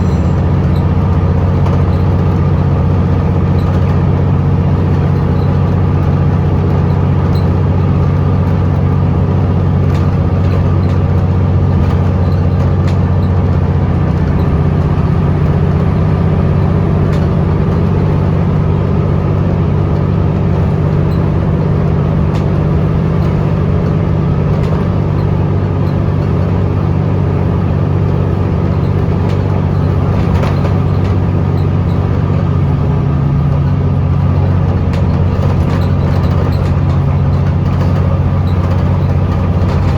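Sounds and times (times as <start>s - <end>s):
bus diesel engine droning: 0.0s - 39.9s
light clicks and rattles: 20.0s - 39.9s.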